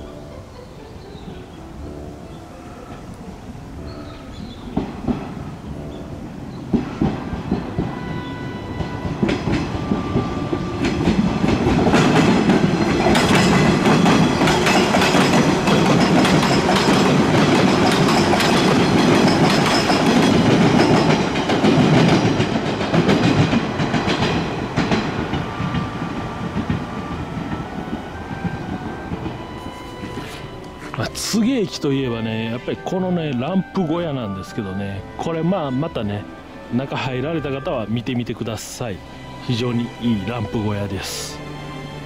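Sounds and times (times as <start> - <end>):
train wheels clicking over rail joints: 4.3 - 31.2.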